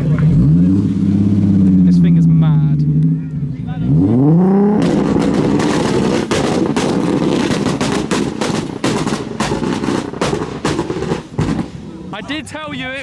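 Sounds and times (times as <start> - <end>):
car engine revving hard: 0.0 - 12.1
exhaust bangs and pops: 0.0 - 12.1.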